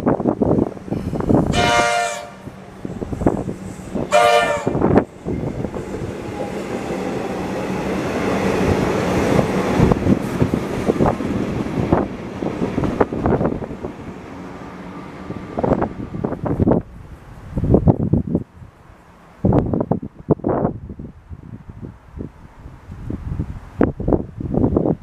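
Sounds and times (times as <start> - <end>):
train rumbling past: 0.0 - 24.8
train horn blasts: 1.0 - 2.5, 4.0 - 5.0.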